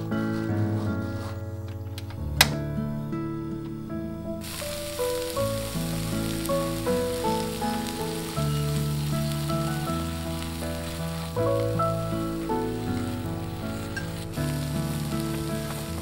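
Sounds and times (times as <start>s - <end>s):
gentle melody of held notes: 0.0s - 16.0s
vegetables sizzling in a wok: 4.4s - 16.0s.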